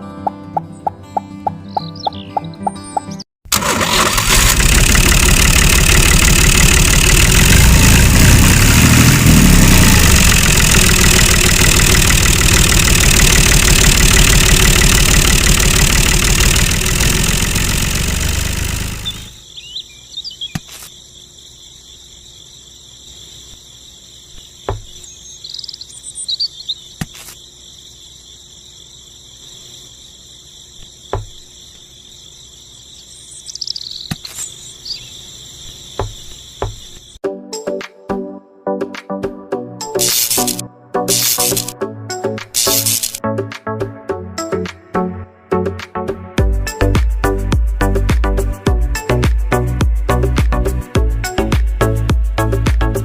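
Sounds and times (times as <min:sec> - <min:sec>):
loud engine running: 0:03.5 - 0:19.4, 0:40.0 - 0:41.7
sharp clicks: 0:10.0 - 0:18.2, 0:40.0 - 0:41.8, 0:42.4 - 0:43.2
crickets chirping: 0:19.0 - 0:37.2, 0:39.9 - 0:41.8, 0:42.4 - 0:43.2.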